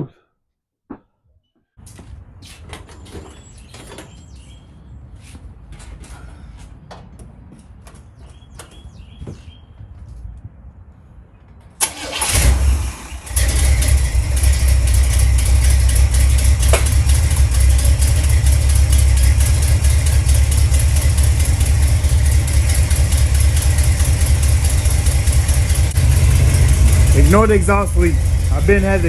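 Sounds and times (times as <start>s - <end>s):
car starter cranking: 11.8s - 29.0s
car engine idling: 12.0s - 29.0s.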